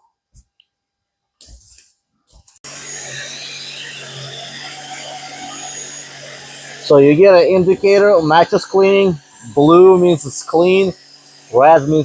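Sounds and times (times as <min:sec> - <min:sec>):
vacuum motor whining: 0:02.6 - 0:12.0.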